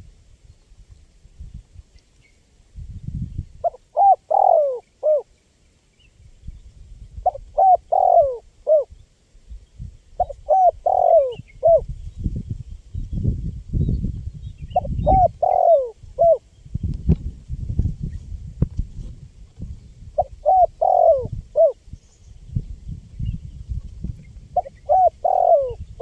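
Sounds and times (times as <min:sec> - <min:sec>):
dove cooing: 0:03.6 - 0:05.3, 0:07.2 - 0:08.9, 0:10.2 - 0:11.9, 0:14.7 - 0:16.4, 0:20.2 - 0:21.8, 0:24.6 - 0:26.0.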